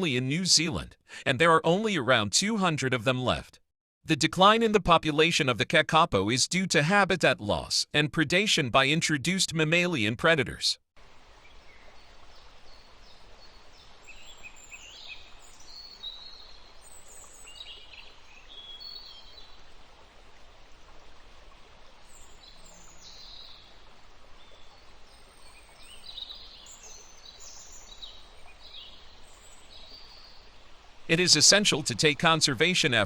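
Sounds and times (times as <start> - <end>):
faint hiss: 11.0 - 33.0
small birds chirping: 11.2 - 19.7, 22.0 - 33.0.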